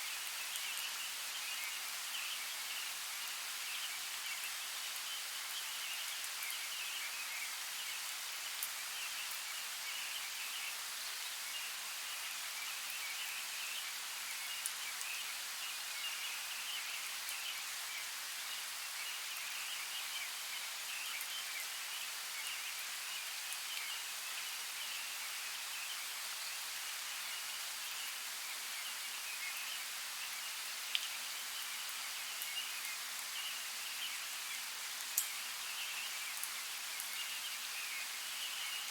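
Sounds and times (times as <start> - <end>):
steady rain falling: 0.0 - 38.9
sharp raindrop ticks: 30.9 - 31.2, 35.0 - 35.3.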